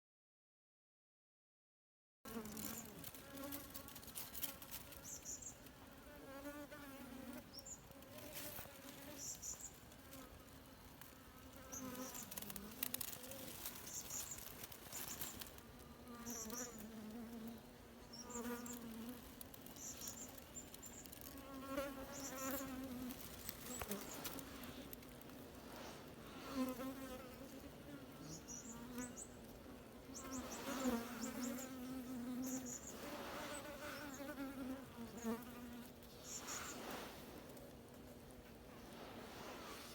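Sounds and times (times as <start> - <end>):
bees buzzing: 8.8 - 24.9.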